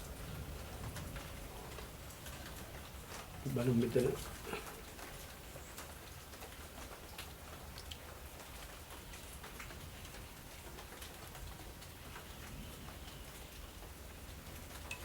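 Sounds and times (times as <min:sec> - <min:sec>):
low hiss: 0:00.0 - 0:15.0
faint light clicks and ticks: 0:04.0 - 0:15.0.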